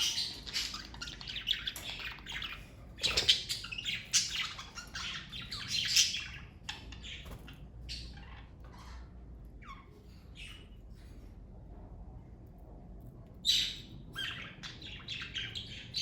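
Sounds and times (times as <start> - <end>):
budgerigars chirping: 0.0 - 9.0, 13.5 - 16.0.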